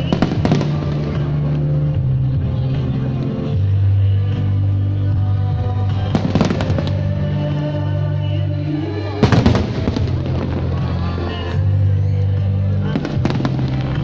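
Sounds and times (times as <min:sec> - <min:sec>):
fireworks crackling and banging: 0:00.0 - 0:03.4, 0:05.9 - 0:07.7, 0:09.2 - 0:11.6, 0:12.8 - 0:14.0.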